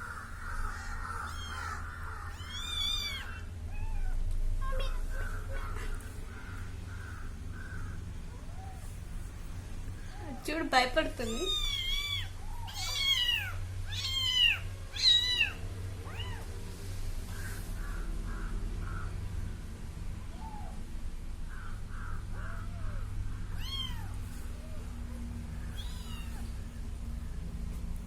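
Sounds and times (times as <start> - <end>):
steady low hum: 0.0 - 28.0
kitten meowing: 0.7 - 4.2, 11.2 - 16.5, 23.6 - 24.2, 25.6 - 26.6.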